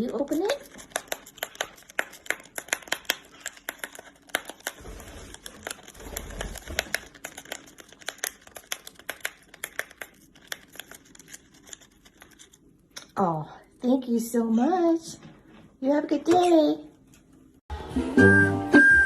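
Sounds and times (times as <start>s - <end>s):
bird tearing tea packet: 0.2s - 12.6s.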